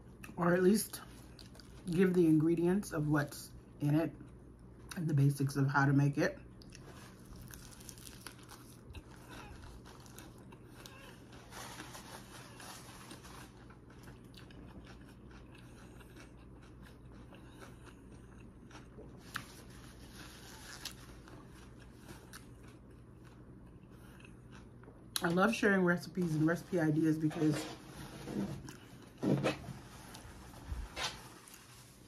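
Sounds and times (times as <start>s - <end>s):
chewing salad crunching: 0.0s - 2.5s, 6.4s - 26.7s.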